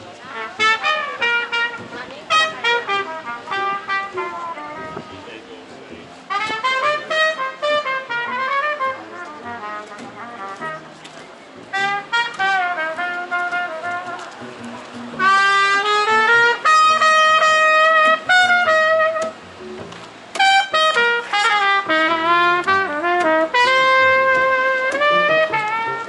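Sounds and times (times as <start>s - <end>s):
trumpet-like brass melody: 0.0s - 26.0s.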